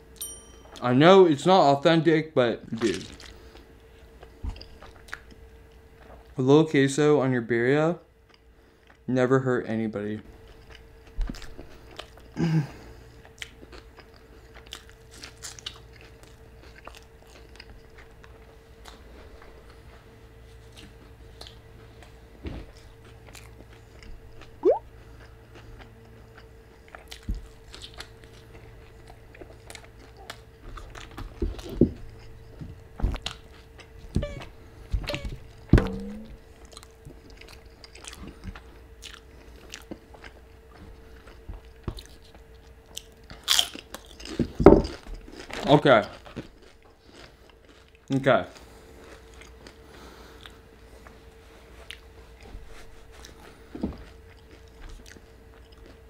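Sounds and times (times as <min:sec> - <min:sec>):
faint steady hum: 0:00.0 - 0:56.0
chewing and biting: 0:02.8 - 0:06.2, 0:10.3 - 0:12.4, 0:13.0 - 0:19.9, 0:20.6 - 0:34.2, 0:36.5 - 0:56.0
wet mouth clicks: 0:24.6 - 0:24.8.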